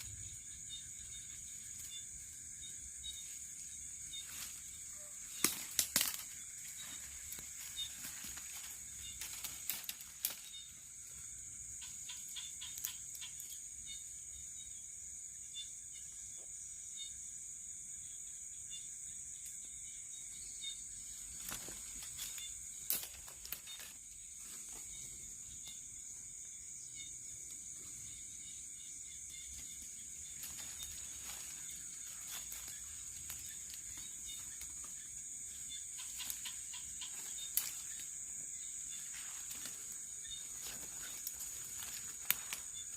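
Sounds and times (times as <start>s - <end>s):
faint pulsing chirp: 0.0s - 17.3s
insects chirping drone: 0.0s - 42.9s.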